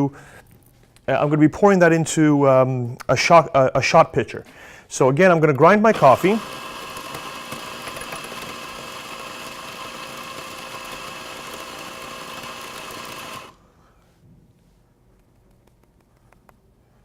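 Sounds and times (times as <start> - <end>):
electric coffee grinder running: 5.9 - 13.6.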